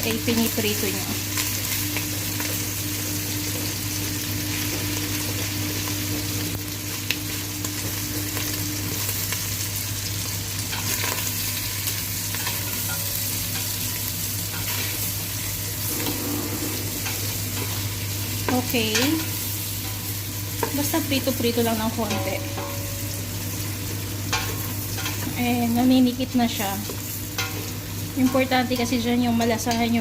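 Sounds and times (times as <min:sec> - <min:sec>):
chicken frying in butter: 0:00.0 - 0:16.2, 0:16.8 - 0:30.0
low even hum: 0:10.7 - 0:30.0.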